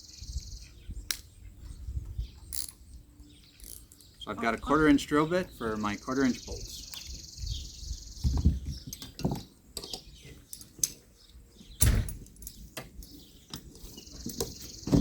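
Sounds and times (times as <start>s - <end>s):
metal tools clinking and rattling: 11.9s - 15.0s.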